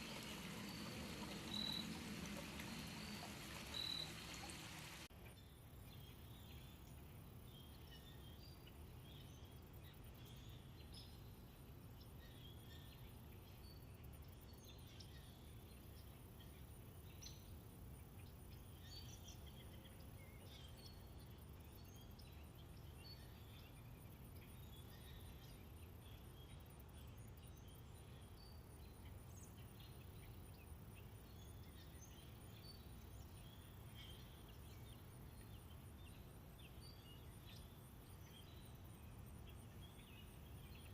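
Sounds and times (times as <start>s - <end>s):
bird chirps: 0.0s - 5.1s.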